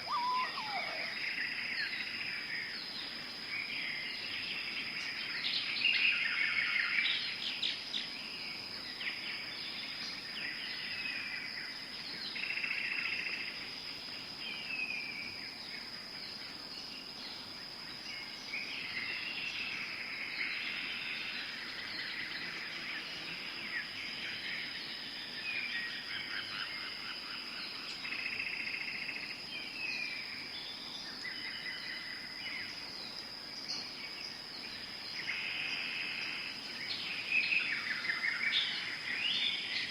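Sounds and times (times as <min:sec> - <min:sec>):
birds calling: 0:00.0 - 0:01.4
high insect drone: 0:00.0 - 0:39.9.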